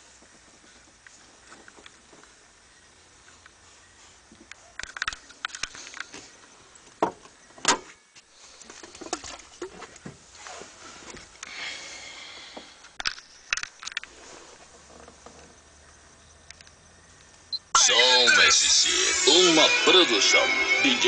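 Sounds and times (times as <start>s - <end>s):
clicks and knocks of handling: 4.4s - 6.2s
hissy rustle: 8.3s - 12.8s, 14.0s - 15.1s.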